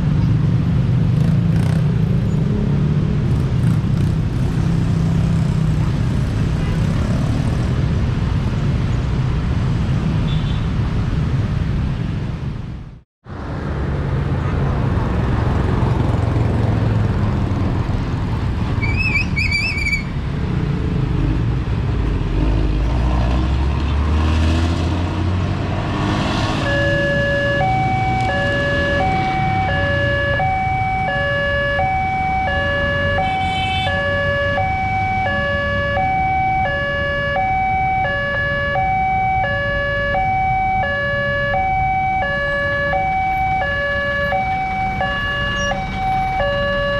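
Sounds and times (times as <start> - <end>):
road traffic passing: 0.0 - 46.9
level crossing warning alarm: 26.6 - 46.9.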